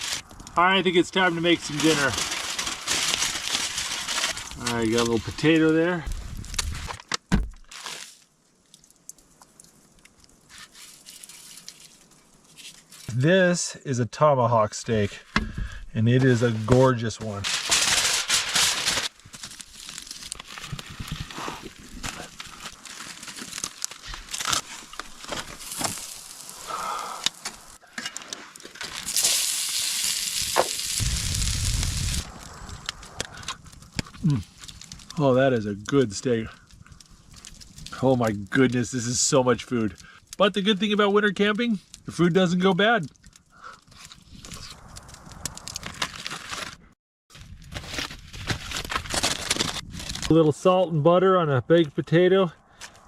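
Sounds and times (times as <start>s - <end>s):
crackles and clicks: 0.0s - 13.6s, 14.5s - 50.8s
faint clicks and crackles: 17.2s - 41.0s
steak sizzling: 17.6s - 27.8s, 28.8s - 33.8s
low rumble: 31.0s - 34.3s.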